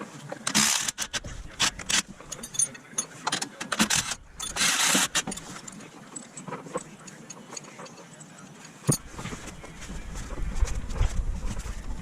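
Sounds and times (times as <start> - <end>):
metal clicks and clanks: 0.5 - 9.4.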